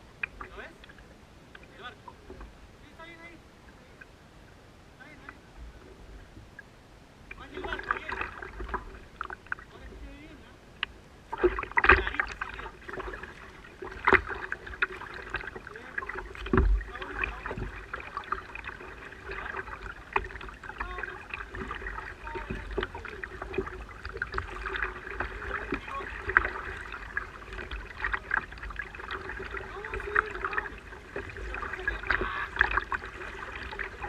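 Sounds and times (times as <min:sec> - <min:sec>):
knocks and clicks on kayak hull: 0:10.8 - 0:13.2, 0:13.8 - 0:34.0.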